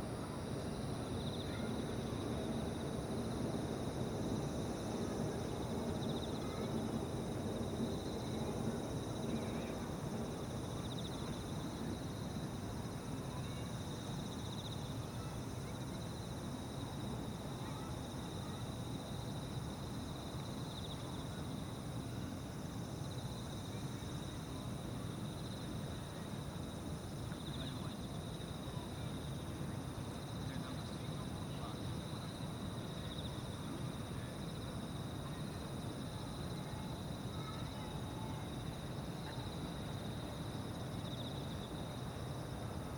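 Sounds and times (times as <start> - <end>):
insects trilling: 0.2 - 29.4.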